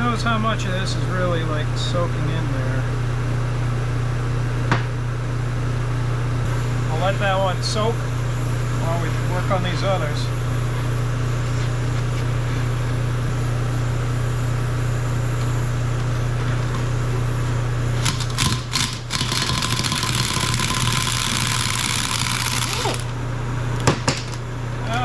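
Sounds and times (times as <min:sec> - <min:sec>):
exhaust fan humming: 0:00.0 - 0:25.0
gas torch hissing: 0:06.4 - 0:25.0.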